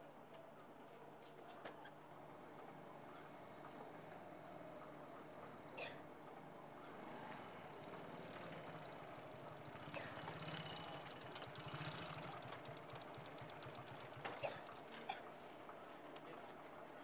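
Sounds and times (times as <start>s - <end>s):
faint motorcycle engine puttering: 1.4s - 16.7s.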